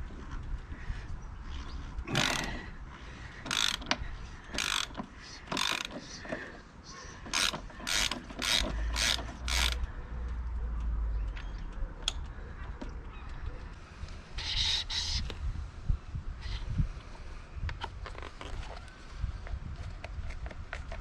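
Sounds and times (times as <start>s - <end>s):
ratchet spanner clicking: 3.4s - 6.0s, 7.3s - 9.9s.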